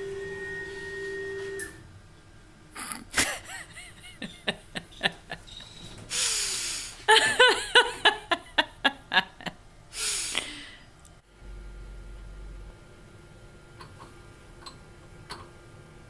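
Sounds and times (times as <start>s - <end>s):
steady tone: 11.3s - 13.2s.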